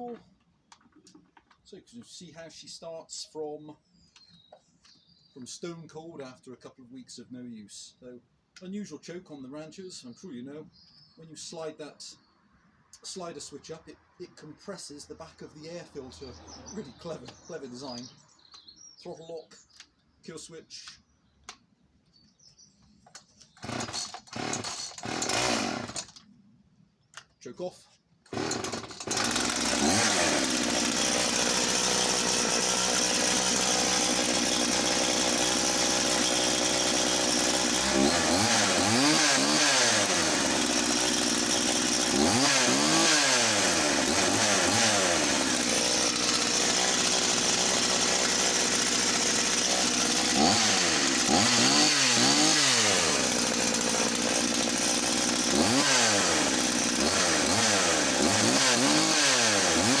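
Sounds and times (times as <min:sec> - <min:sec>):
chainsaw idling and revving: 0:23.6 - 0:26.2, 0:28.2 - 1:00.0.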